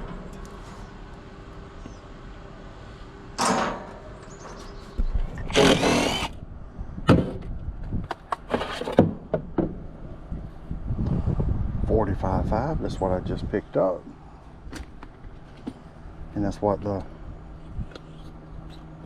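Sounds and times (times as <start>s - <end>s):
tools scraping: 5.2s - 6.4s, 8.3s - 9.0s.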